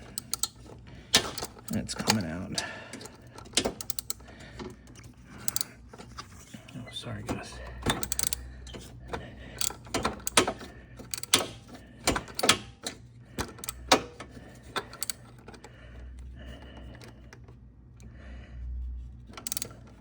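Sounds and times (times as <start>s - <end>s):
wrench metal clicks and clanks: 0.0s - 6.5s, 7.1s - 15.7s, 19.3s - 20.0s.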